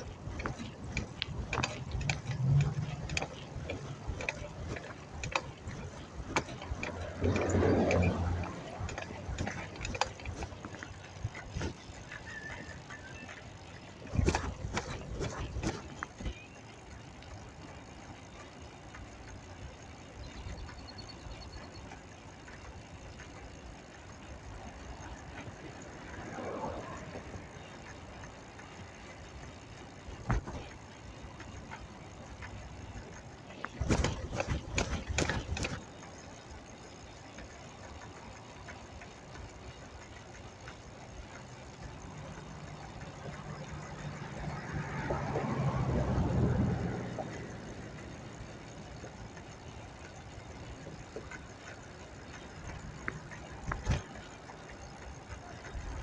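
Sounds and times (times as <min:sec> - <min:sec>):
vehicle engine passing close: 0:00.0 - 0:16.0, 0:24.4 - 0:36.7, 0:40.6 - 0:56.0
street traffic: 0:00.0 - 0:56.0.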